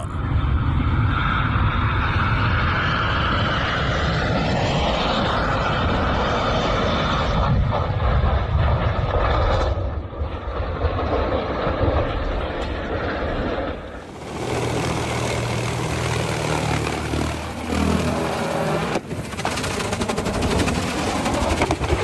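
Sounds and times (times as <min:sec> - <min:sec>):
airplane engine drone: 0:00.0 - 0:22.0.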